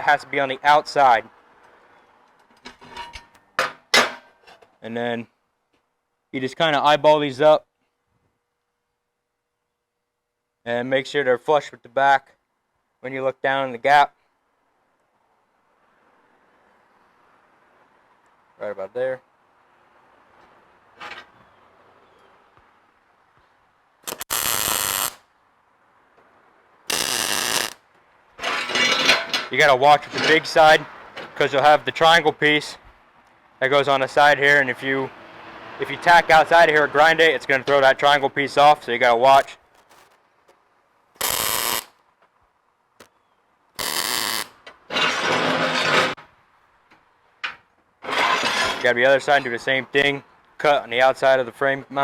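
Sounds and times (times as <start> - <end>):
welding arc crackling and buzzing: 24.0 - 25.3, 26.9 - 27.8, 41.2 - 42.0, 43.8 - 44.6.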